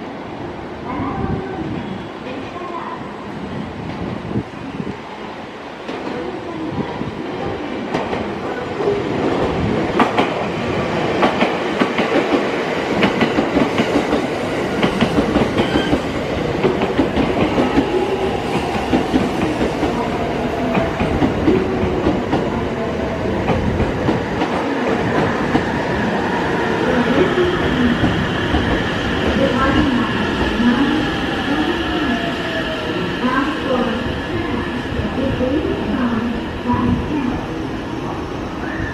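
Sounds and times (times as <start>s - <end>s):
train rumble: 0.9s - 38.9s
train wheels clacking: 11.2s - 22.5s.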